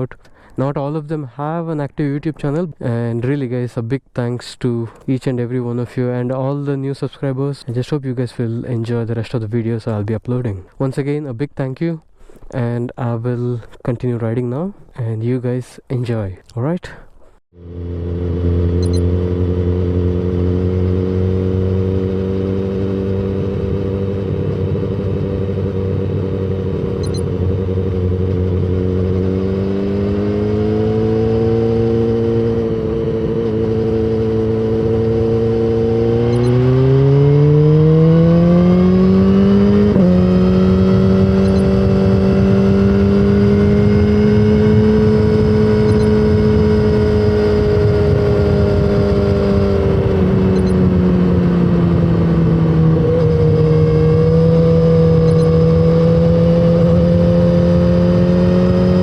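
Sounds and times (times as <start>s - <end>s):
motorcycle engine accelerating: 17.6s - 59.0s.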